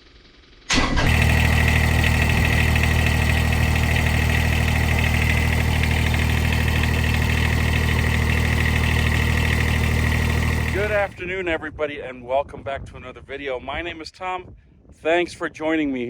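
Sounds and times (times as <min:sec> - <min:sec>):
tractor diesel engine idling: 0:00.7 - 0:11.2.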